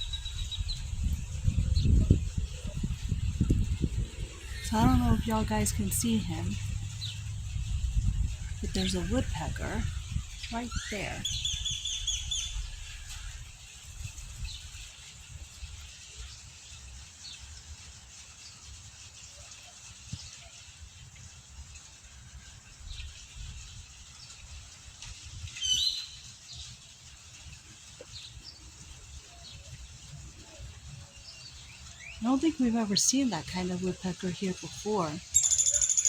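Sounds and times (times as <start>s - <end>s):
low rumble: 0.0s - 11.5s
small birds chirping: 0.0s - 13.4s, 27.4s - 36.0s.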